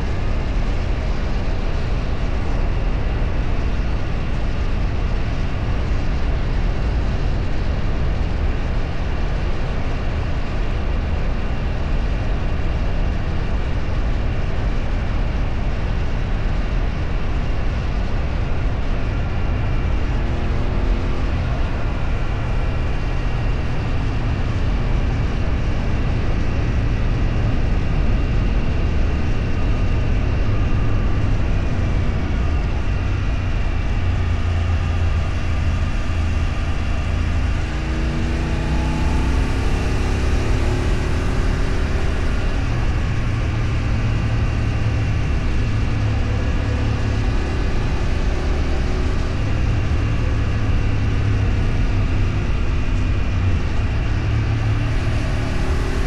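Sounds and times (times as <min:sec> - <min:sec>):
vehicle engine and road noise: 0:00.0 - 0:56.0
engine revving up: 0:29.3 - 0:56.0.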